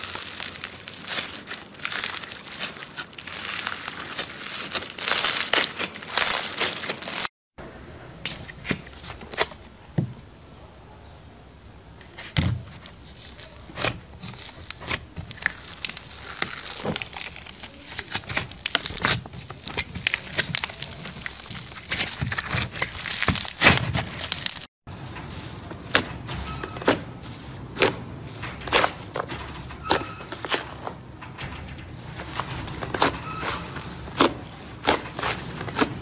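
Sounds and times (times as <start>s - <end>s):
slime crackling and popping: 0.0s - 7.3s, 12.8s - 24.7s.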